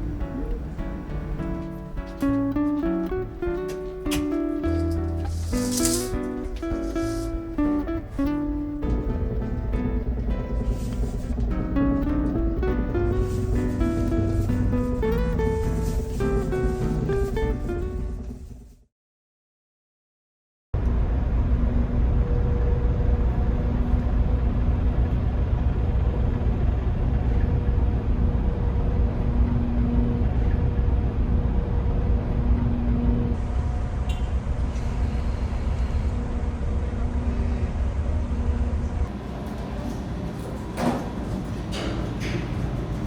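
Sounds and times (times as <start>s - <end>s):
low engine rumble: 0.0s - 18.6s, 20.8s - 43.0s
clicks and knocks: 3.6s - 7.4s.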